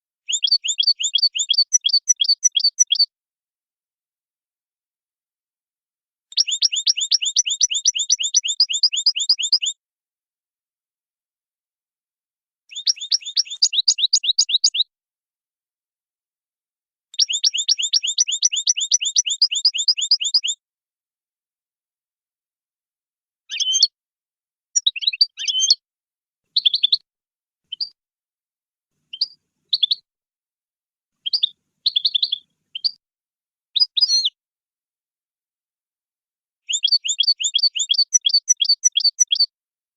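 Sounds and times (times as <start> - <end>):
goldfinch chirps: 0.2 - 3.1, 6.3 - 9.8, 12.7 - 14.9, 17.2 - 20.6, 23.5 - 23.9, 24.8 - 25.8, 26.6 - 27.0, 27.7 - 28.0, 29.1 - 30.0, 31.2 - 33.0, 33.8 - 34.4, 36.7 - 39.5
goldfinch trills: 0.3 - 3.1, 6.4 - 9.8, 12.7 - 14.9, 17.2 - 20.6, 36.7 - 39.5.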